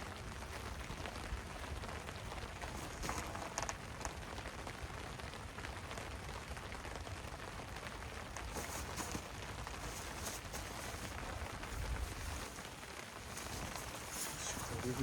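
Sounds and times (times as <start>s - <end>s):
rain pattering: 0.0s - 15.0s
gear rustling: 2.7s - 3.7s, 8.4s - 15.0s.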